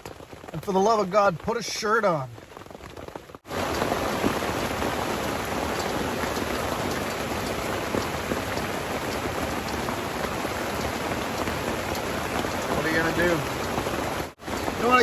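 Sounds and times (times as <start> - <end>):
rain hissing on tent: 0.0 - 15.0
drops ticking on fabric: 5.6 - 15.0.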